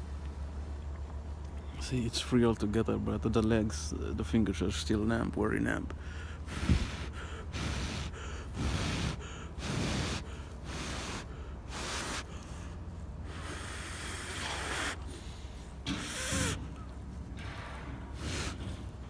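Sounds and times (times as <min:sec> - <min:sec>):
man breathing hard: 0:05.9 - 0:16.6, 0:18.2 - 0:19.0.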